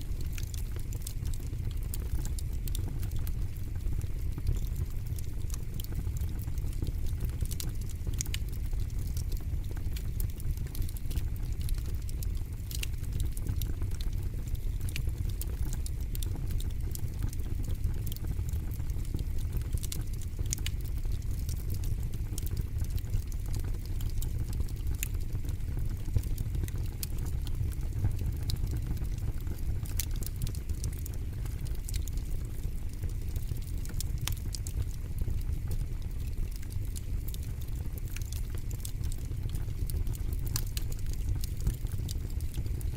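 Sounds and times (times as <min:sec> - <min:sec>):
fire crackling and popping: 0:00.0 - 0:42.9.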